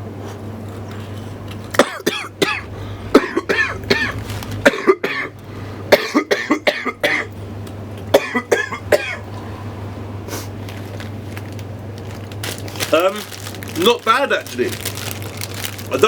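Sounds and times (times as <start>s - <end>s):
man coughing: 1.8s - 7.3s, 8.1s - 9.2s.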